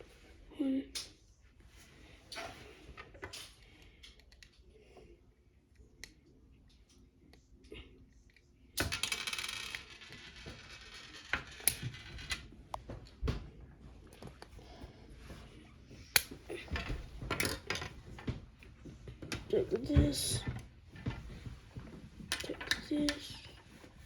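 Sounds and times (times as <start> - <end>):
plastic parts clicking and rattling: 16.0 - 18.4.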